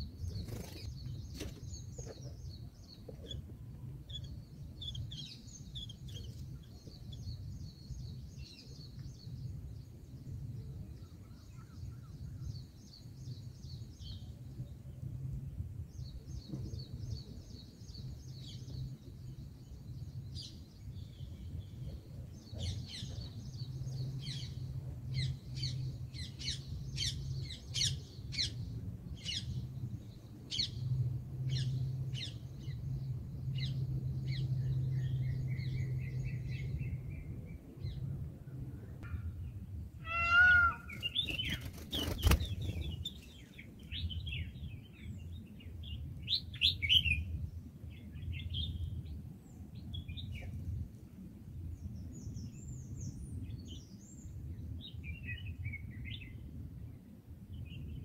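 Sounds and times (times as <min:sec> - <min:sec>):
small birds chirping: 0:00.0 - 0:14.7, 0:16.0 - 0:50.9
steady low hum: 0:00.0 - 0:40.0, 0:40.7 - 0:58.0
wavering bird call: 0:40.0 - 0:41.1.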